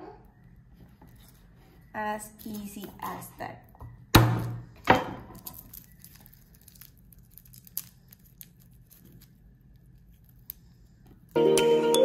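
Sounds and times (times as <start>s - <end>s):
garlic skins crinkling: 0.9s - 3.7s, 5.2s - 11.4s.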